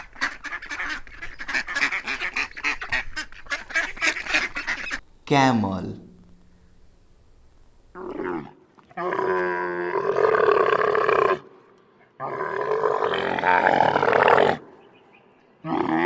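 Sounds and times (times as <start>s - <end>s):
camel bellowing: 12.2s - 14.8s, 15.6s - 16.0s.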